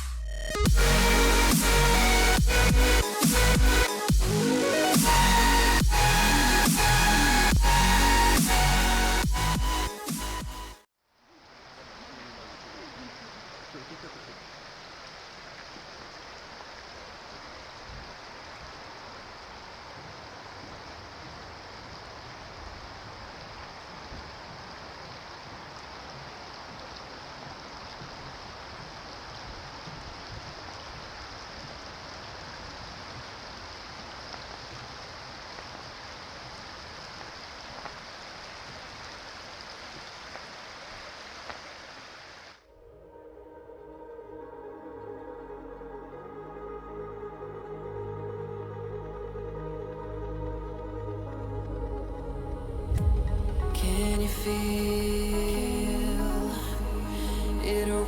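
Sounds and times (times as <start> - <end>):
rain hissing: 0.0 - 42.6, 51.8 - 58.0
faint low rumble: 42.8 - 58.0.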